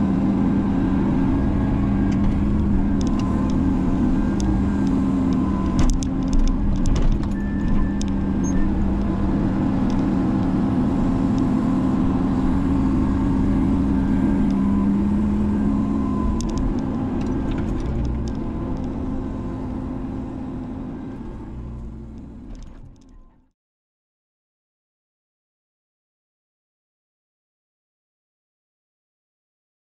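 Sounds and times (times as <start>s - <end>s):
diesel excavator engine running: 0.0s - 23.5s.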